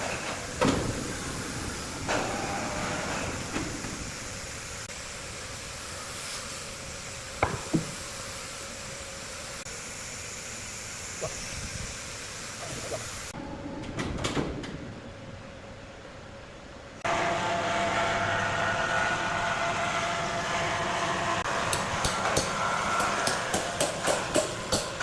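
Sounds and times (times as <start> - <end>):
sharp knocks: 7.4 - 8.0.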